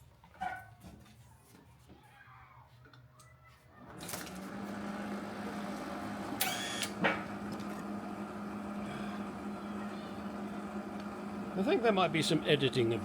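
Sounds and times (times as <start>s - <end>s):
welding machine humming: 4.2s - 13.0s.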